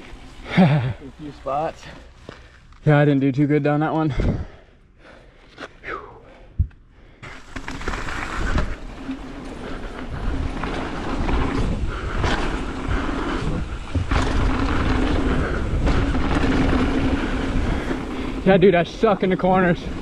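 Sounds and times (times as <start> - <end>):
tyres rumbling on trail: 0.0 - 4.6, 7.2 - 20.0
bike knocking and clattering: 6.6 - 20.0
wind on microphone: 10.0 - 18.4.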